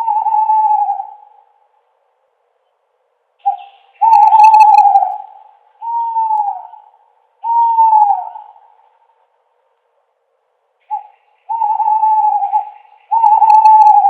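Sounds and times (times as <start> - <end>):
owl hooting: 0.0 - 1.8, 3.4 - 9.1, 10.8 - 14.0.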